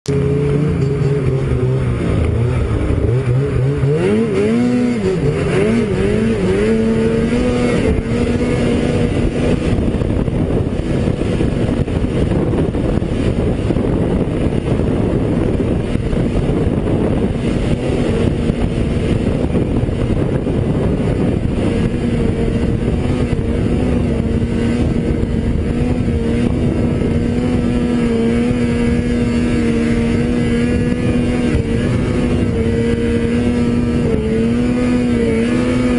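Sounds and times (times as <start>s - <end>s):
rough rushing noise: 0.0s - 35.9s
snowmobile engine running: 0.0s - 35.9s.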